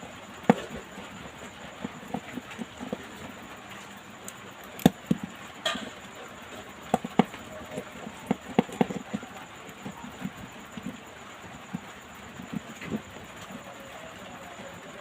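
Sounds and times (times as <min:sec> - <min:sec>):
small tools clicking on phone parts: 0:04.6 - 0:05.2.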